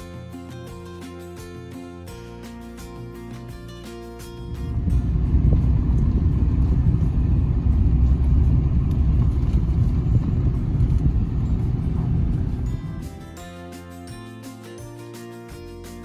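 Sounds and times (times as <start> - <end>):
loud low vehicle rumble: 4.3 - 13.4.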